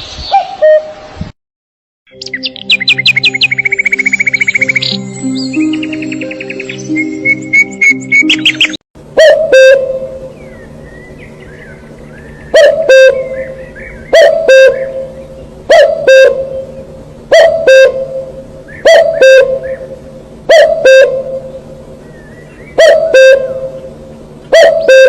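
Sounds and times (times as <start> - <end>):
small birds twittering: 2.1 - 8.8, 10.3 - 16.8, 21.5 - 24.9.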